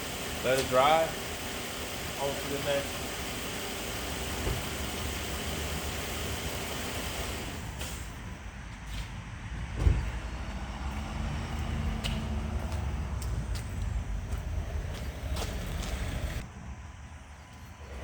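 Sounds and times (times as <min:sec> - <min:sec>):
vehicle engine rumbling: 0:00.0 - 0:18.0
loud thump: 0:09.8 - 0:10.2.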